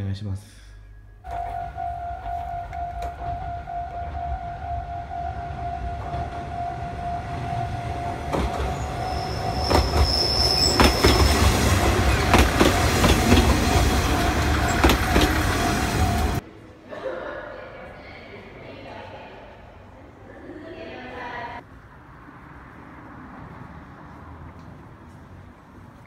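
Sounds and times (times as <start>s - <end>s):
diesel railcar engine rumble: 0.9s - 16.4s
steady high tone: 1.0s - 16.4s
high wheel squeal: 1.3s - 16.4s
wheels clattering over rail joints: 7.3s - 16.4s.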